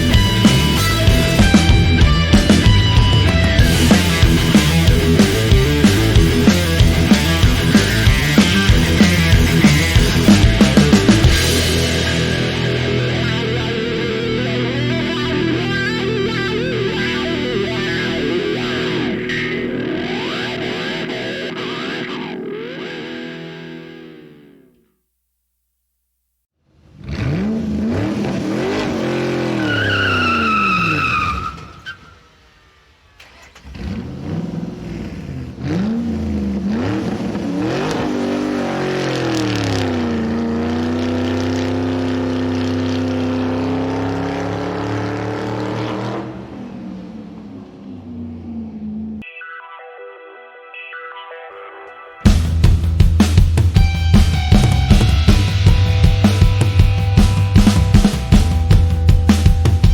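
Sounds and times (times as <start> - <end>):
car engine revving: 0.0 - 23.2, 26.8 - 31.8, 32.4 - 49.2, 52.3 - 59.9
tyre squeal: 29.4 - 32.3.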